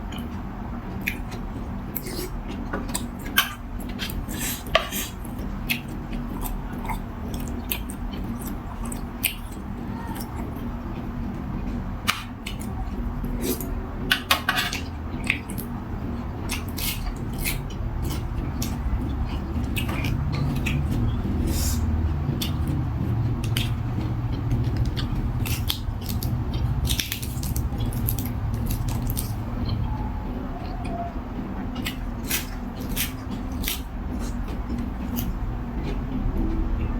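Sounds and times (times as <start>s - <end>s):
steady low hum: 0.0s - 36.9s
utensils clinking against bowl: 13.5s - 15.0s.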